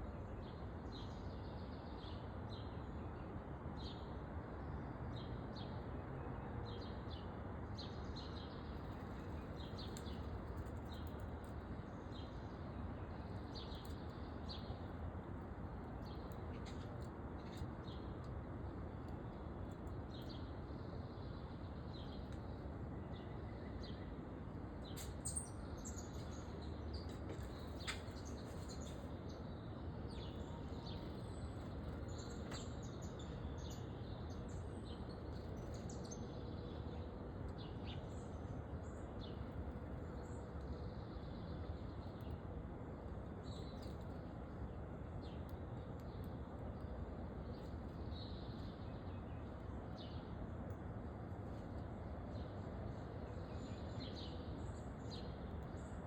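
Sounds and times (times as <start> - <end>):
low background noise: 0.0 - 56.0
small birds chirping: 7.8 - 15.0, 24.9 - 42.5.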